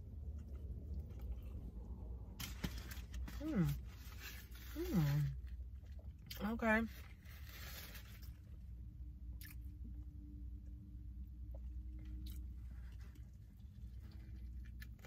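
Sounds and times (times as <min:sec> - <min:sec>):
person chewing: 0:00.0 - 0:02.2, 0:09.4 - 0:09.7, 0:11.6 - 0:15.0
low rumble: 0:00.0 - 0:06.3.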